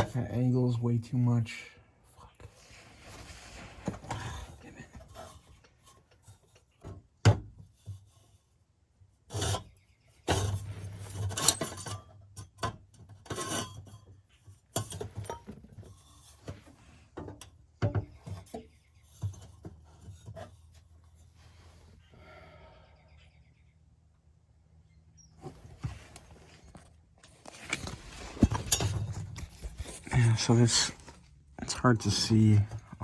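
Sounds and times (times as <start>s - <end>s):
metal pipes scraping and knocking: 0.0s - 0.8s, 3.1s - 7.0s, 9.3s - 21.4s, 25.5s - 33.0s.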